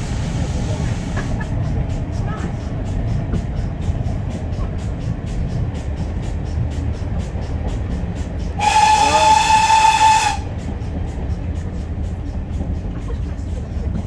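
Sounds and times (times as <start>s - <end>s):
train rumbling: 0.0s - 14.0s
steam locomotive whistle: 8.4s - 10.8s.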